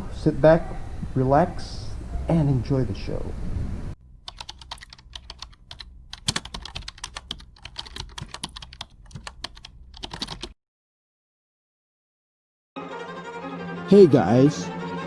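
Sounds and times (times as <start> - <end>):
keyboard typing clicks: 4.2 - 10.6.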